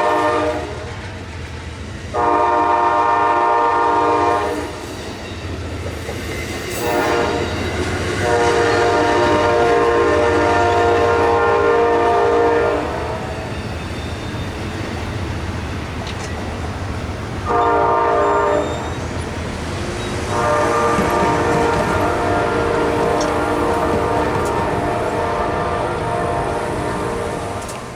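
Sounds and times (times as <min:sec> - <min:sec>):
train horn blasts: 0:00.0 - 0:01.0, 0:02.1 - 0:04.8, 0:06.8 - 0:13.5, 0:17.4 - 0:19.0, 0:20.2 - 0:27.9
train rumble: 0:00.0 - 0:27.9.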